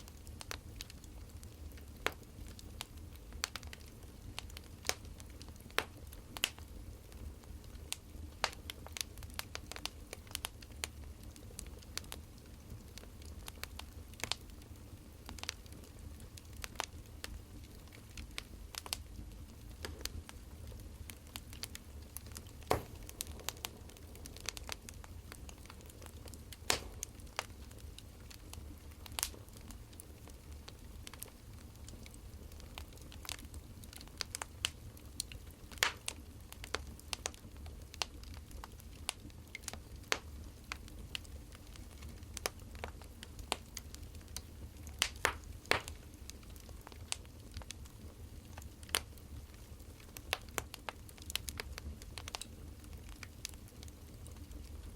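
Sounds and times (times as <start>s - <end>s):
wood fire crackling: 0.0s - 54.9s
low steady hum: 12.6s - 37.1s.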